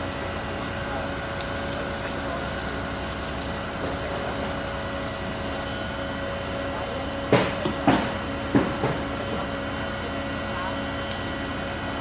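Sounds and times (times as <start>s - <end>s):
construction machinery droning: 0.0s - 12.0s
sharp loud knocks: 7.3s - 9.6s.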